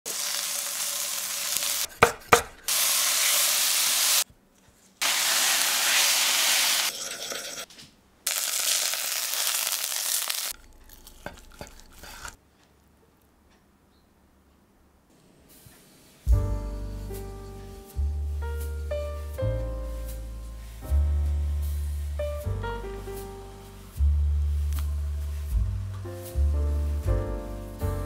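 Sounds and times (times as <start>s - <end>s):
oil sizzling in a frying pan: 0.1s - 1.9s, 2.7s - 4.2s, 5.0s - 7.6s, 8.3s - 10.6s.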